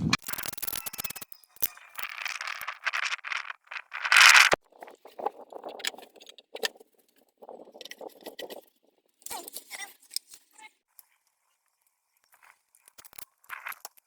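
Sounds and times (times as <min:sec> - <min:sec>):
tools and car parts rattling: 0:00.6 - 0:04.6.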